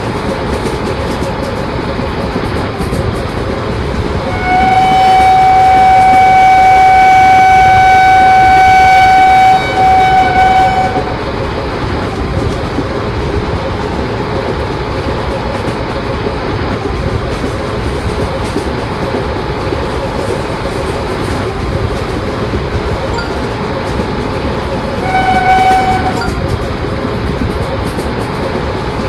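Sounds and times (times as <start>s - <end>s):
passing train rumbling: 0.0s - 29.0s
train horn blast: 4.2s - 11.2s, 25.0s - 26.4s.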